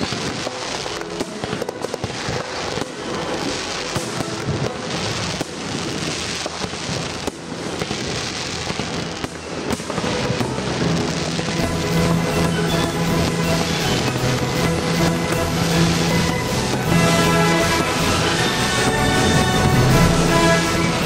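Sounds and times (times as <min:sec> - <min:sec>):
fireworks crackling and popping: 0:00.0 - 0:21.0
music playing: 0:10.2 - 0:21.0.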